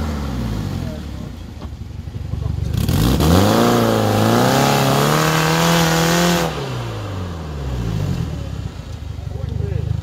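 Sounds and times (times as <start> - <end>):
engine revving under load: 2.6 - 8.8.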